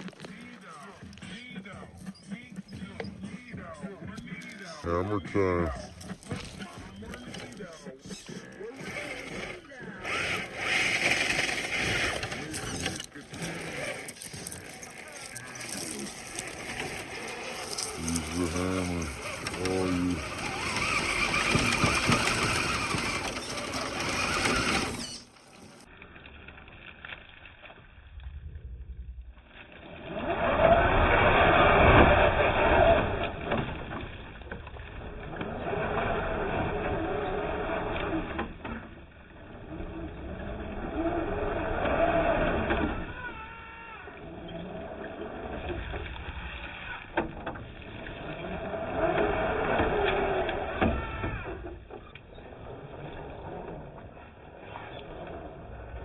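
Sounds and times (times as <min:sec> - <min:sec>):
small electric motor whirring: 0:06.0 - 0:26.0
low rumble: 0:27.8 - 0:35.5
muffled low rumble: 0:27.9 - 0:29.5.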